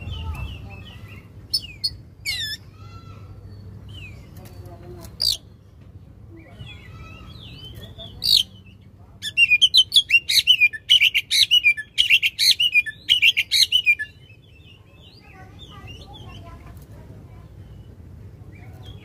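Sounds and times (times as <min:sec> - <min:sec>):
magpie-robin singing: 0:00.0 - 0:16.7, 0:17.4 - 0:19.0.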